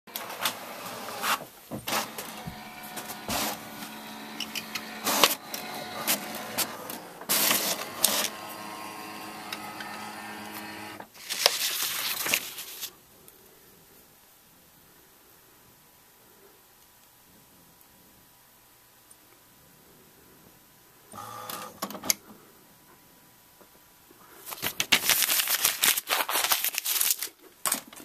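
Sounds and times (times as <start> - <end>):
small machine whirring: 1.9 - 11.1, 21.1 - 21.8.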